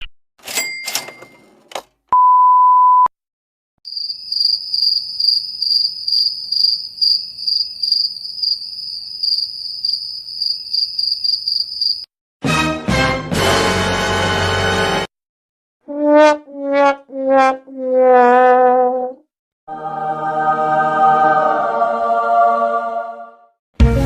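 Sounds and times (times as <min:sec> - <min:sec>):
crickets chirping: 0:03.9 - 0:12.1.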